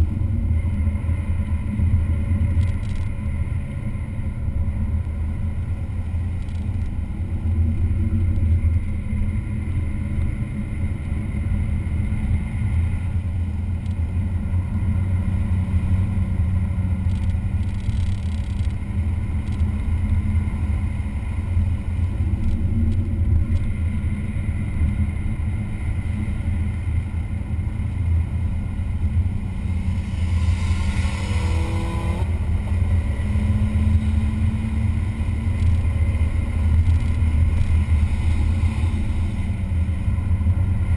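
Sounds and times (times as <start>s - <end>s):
race car engine at speed: 0.0s - 40.9s
falling whine: 26.5s - 40.9s.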